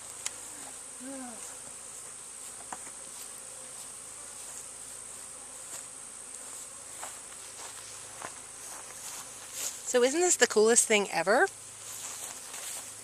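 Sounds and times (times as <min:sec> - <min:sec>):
bee flying past: 0:00.0 - 0:13.0
honeybees buzzing: 0:00.0 - 0:13.0.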